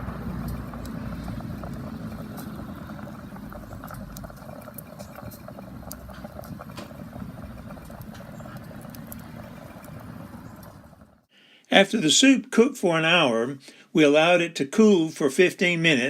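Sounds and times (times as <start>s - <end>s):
campfire crackling: 0.0s - 11.3s.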